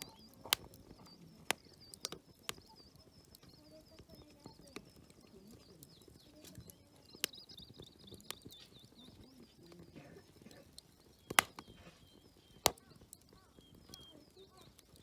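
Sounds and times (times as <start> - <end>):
campfire crackling and popping: 0.0 - 15.0
faint birds chirping: 0.0 - 15.0.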